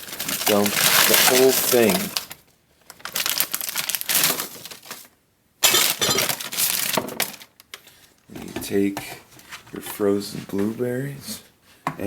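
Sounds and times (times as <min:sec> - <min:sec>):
frozen fruit clattering into strainer: 0:00.0 - 0:07.7.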